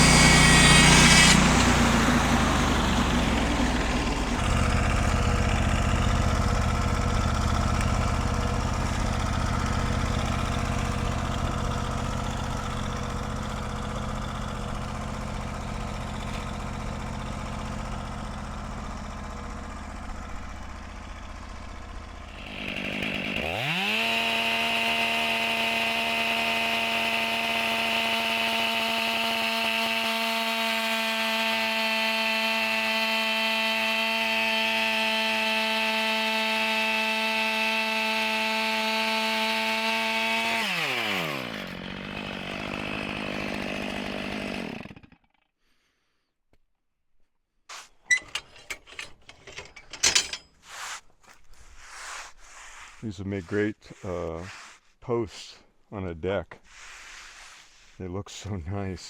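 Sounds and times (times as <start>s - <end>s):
small gas engine running: 0.0s - 45.4s.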